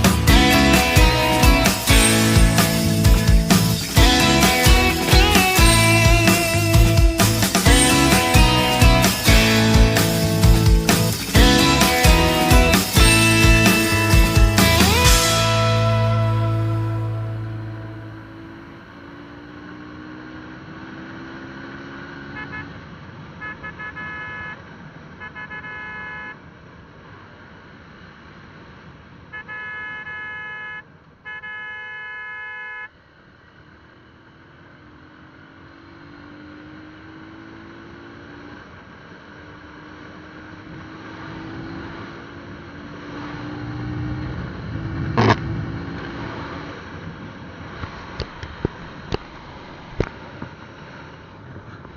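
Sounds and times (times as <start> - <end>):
engine speeding up: 0.0 - 22.7, 33.8 - 51.9
traffic hum: 0.0 - 51.9
vehicle horn honking: 22.3 - 22.8, 23.4 - 24.6, 25.2 - 26.4, 29.3 - 32.9
sharp loud bang: 44.7 - 45.8.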